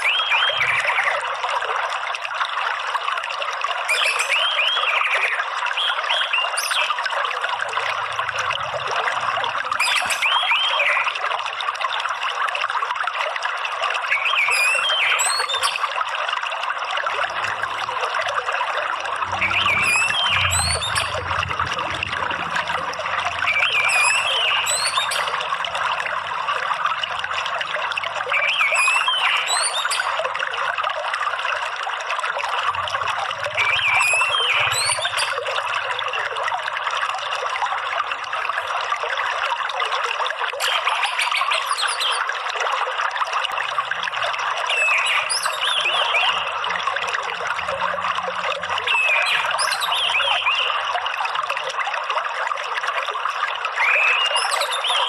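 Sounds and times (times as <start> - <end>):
trickling running water: 0.0 - 55.0.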